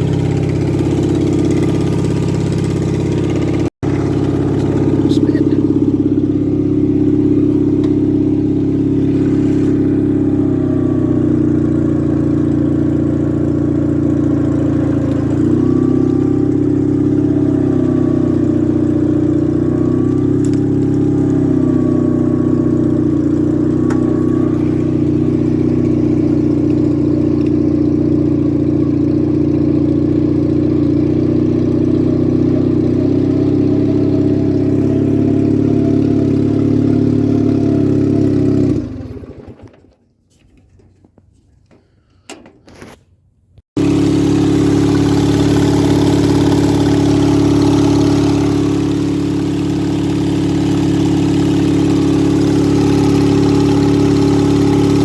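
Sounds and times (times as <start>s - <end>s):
tractor engine idling: 0.0s - 43.0s, 43.8s - 55.0s.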